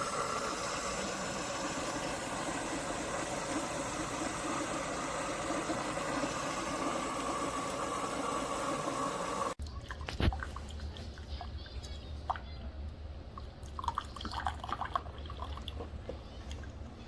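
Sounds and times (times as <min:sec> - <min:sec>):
coffee maker pump humming: 0:00.0 - 0:17.0
coffee dripping: 0:13.4 - 0:16.8.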